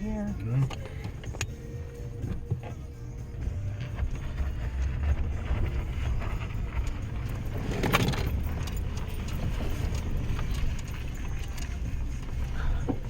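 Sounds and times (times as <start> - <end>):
engine rumbling: 0.0 - 13.0
metallic rattle: 3.8 - 13.0.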